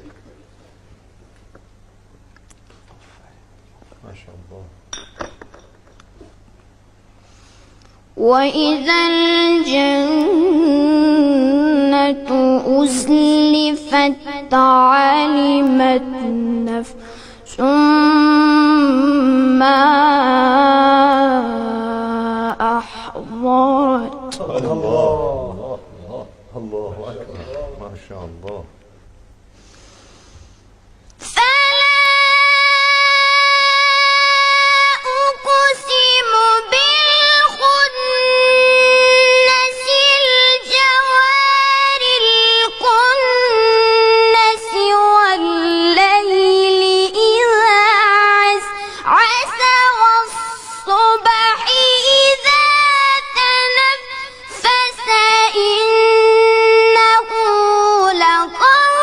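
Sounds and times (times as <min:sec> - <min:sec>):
high voice chanting recitation: 0:08.2 - 0:28.8, 0:34.3 - 0:59.0.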